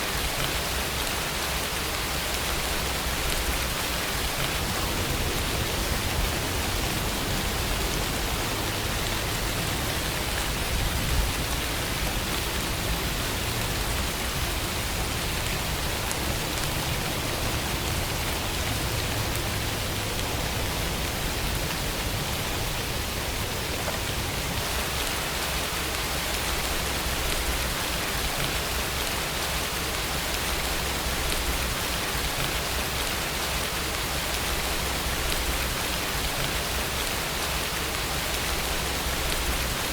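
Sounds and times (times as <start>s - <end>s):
rain hiss: 0.0s - 39.9s
low rumble: 3.3s - 11.5s.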